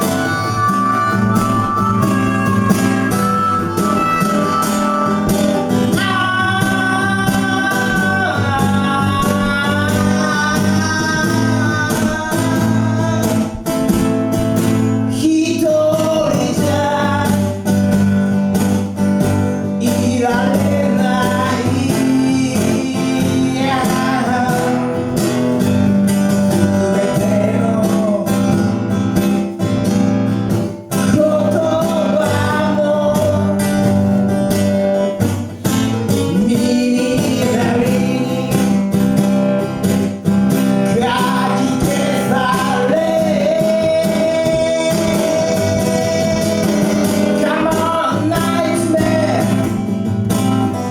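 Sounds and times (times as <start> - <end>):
bending melody line: 0.0 - 18.8, 35.9 - 50.9
strummed acoustic guitar: 0.0 - 50.9.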